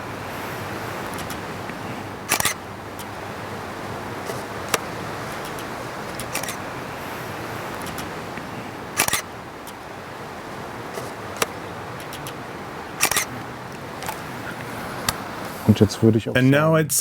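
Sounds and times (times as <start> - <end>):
outdoor background hiss: 0.0 - 17.0
camera shutter clicks: 2.3 - 3.1, 4.2 - 6.6, 9.0 - 9.8, 13.0 - 13.3.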